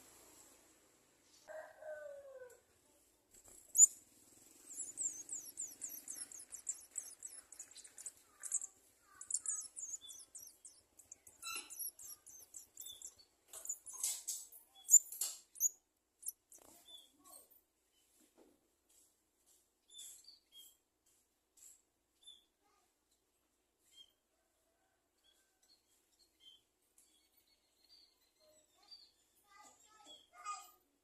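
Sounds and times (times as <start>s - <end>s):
nestlings chirping: 3.3s - 17.1s.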